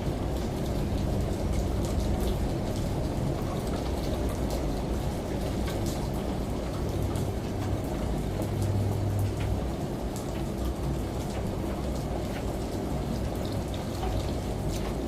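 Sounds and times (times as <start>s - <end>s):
rain: 0.0s - 15.0s
washing machine humming: 0.0s - 15.0s.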